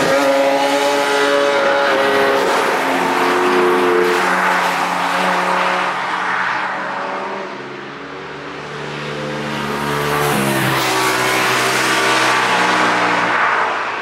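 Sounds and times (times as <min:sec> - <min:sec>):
race car engines at high revs: 0:00.0 - 0:07.6, 0:08.6 - 0:14.0.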